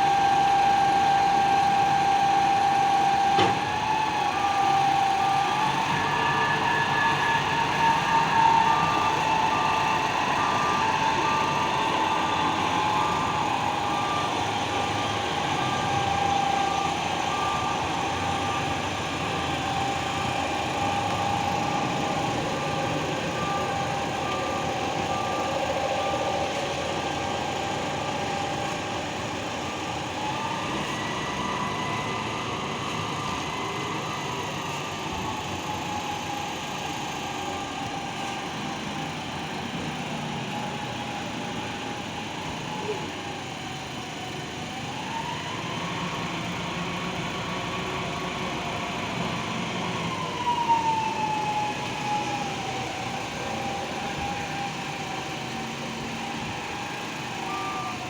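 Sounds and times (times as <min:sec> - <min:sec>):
reversing alarm beeping: 0:00.0 - 0:38.7, 0:50.4 - 0:58.0
truck engine with whine: 0:00.0 - 0:58.0.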